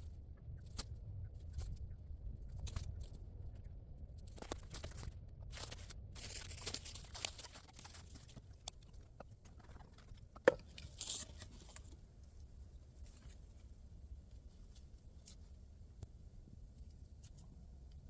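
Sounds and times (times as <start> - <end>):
crunching and rustling handling: 4.2 - 16.1.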